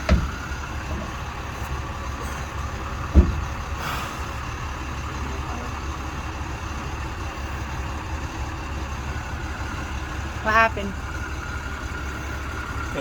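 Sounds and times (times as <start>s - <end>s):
truck engine idling: 0.0s - 13.0s
sharp thump: 3.1s - 3.5s.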